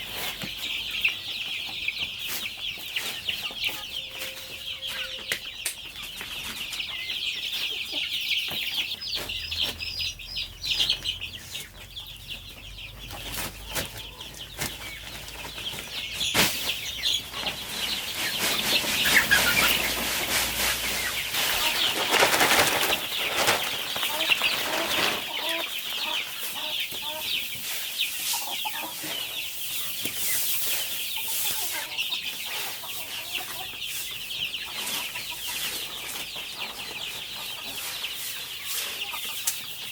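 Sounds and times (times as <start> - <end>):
chickens clucking: 0.0 - 39.9
wings flapping: 17.8 - 25.6.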